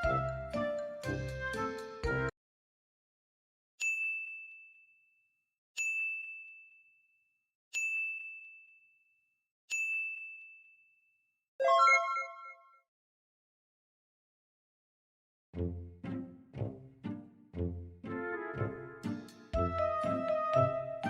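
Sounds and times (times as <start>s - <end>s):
high ding chimes: 3.8s - 5.0s, 5.8s - 6.9s, 7.8s - 8.9s, 9.7s - 10.9s, 11.6s - 12.8s.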